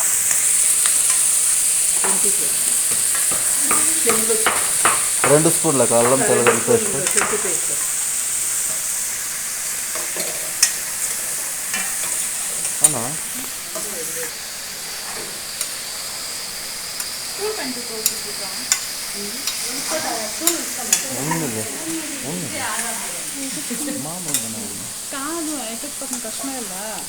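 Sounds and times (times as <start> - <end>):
paste sizzling in hot oil: 0.0 - 27.0
spoon clicking against pan: 2.0 - 7.9, 18.0 - 19.6.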